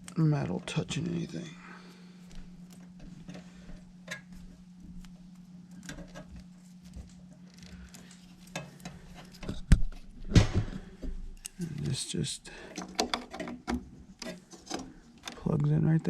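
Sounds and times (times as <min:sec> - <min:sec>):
hands clicking and tapping wiring: 0:02.2 - 0:10.0, 0:11.0 - 0:16.0.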